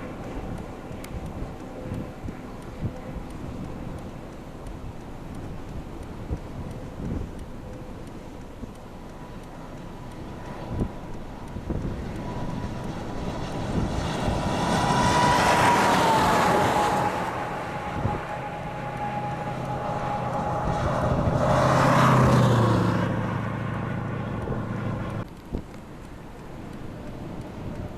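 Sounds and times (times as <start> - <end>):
vehicle passing with whine: 0.0 - 27.9
vehicle engine passing: 9.9 - 25.3.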